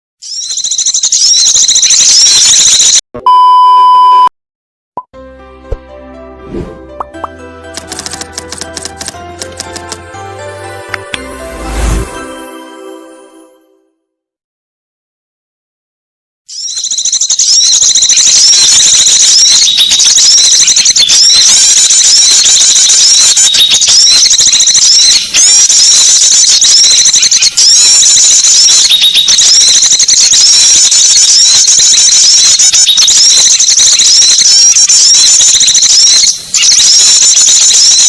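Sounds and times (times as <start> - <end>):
small songbirds chirping and twittering: 0.2 - 2.6, 16.5 - 21.6, 28.5 - 29.9.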